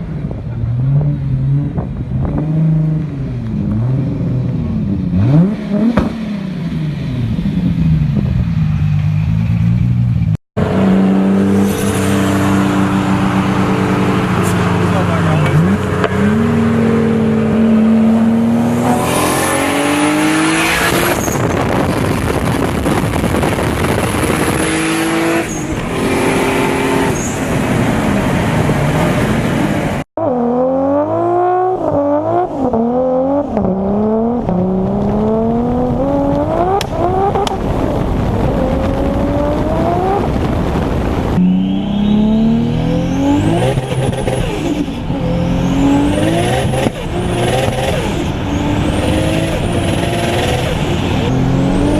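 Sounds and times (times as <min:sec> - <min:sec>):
car engine accelerating hard: 0:10.6 - 0:51.9
high turbo whistle: 0:41.4 - 0:43.5.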